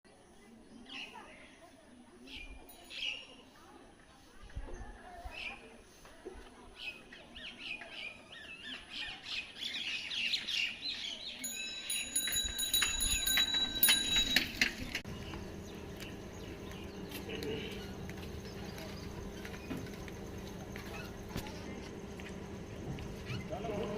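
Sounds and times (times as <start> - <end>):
birds chirping: 0.3 - 3.6, 6.6 - 23.9
steady low hum: 14.9 - 23.9.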